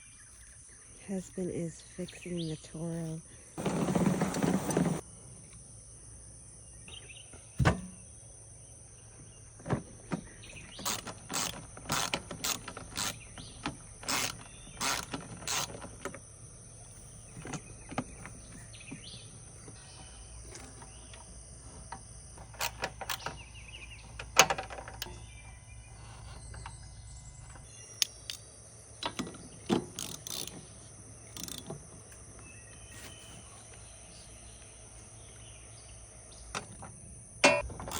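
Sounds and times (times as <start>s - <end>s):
hand tools clicking on metal: 10.8s - 13.2s, 29.9s - 30.6s, 31.4s - 31.7s.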